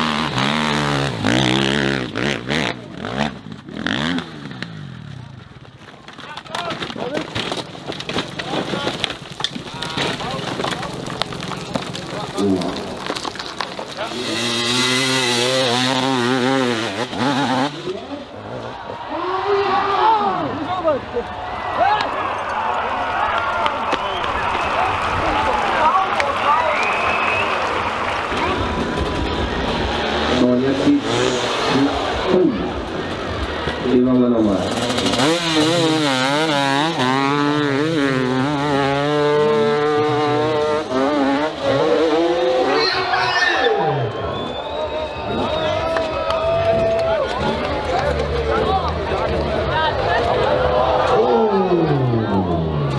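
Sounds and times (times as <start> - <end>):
dirt bike engine revving: 0.0 - 5.4, 13.9 - 20.0, 27.3 - 45.9.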